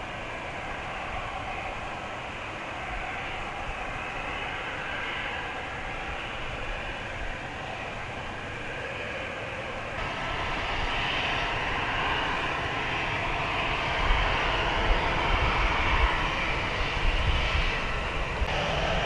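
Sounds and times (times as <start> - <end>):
jet engines roaring: 0.0 - 19.0
heavy low rumble: 9.7 - 19.0.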